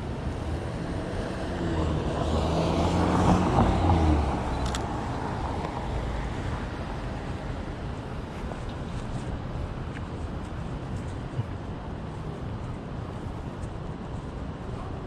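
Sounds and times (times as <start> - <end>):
traffic noise: 0.0 - 15.0
vehicle passing by: 0.4 - 7.4.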